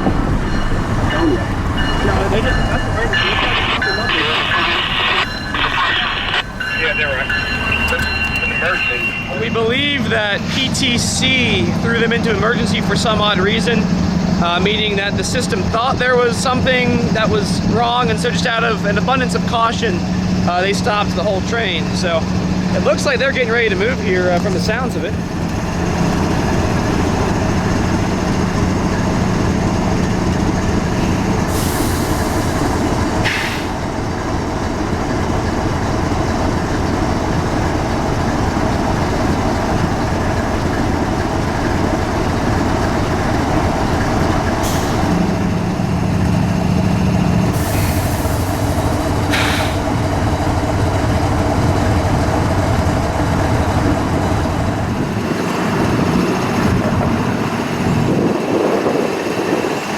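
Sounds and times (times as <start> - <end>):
diesel locomotives running: 0.0 - 59.9
air hissing: 31.5 - 33.8, 47.5 - 50.0.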